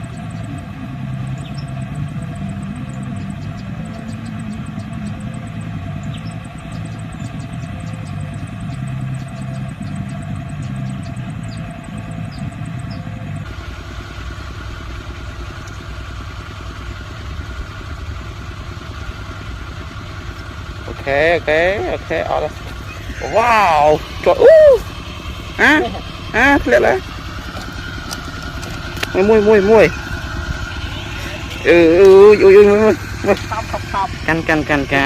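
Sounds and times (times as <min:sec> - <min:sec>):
vehicle engine rumbling: 0:00.0 - 0:35.0.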